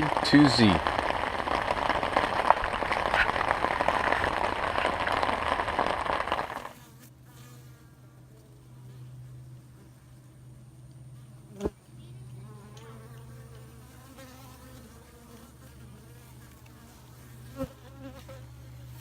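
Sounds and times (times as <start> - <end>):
low hum: 0.0 - 13.8
honeybees buzzing: 0.0 - 19.0.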